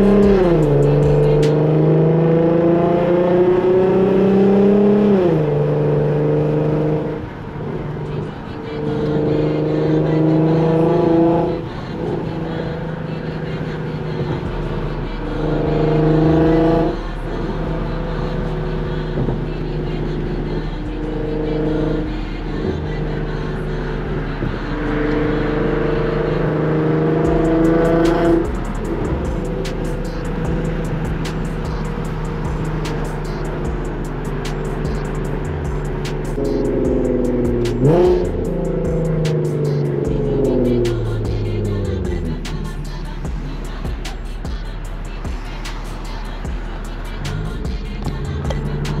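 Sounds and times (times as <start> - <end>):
beat with hi-hat strikes: 0.0 - 1.7, 27.2 - 49.0
car engine through exhaust: 0.0 - 49.0.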